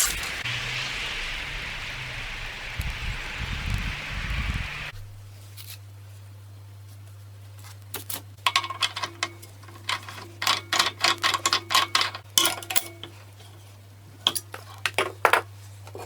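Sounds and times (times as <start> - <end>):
low steady hum: 0.0 - 6.6
metal parts clinking: 7.9 - 15.4.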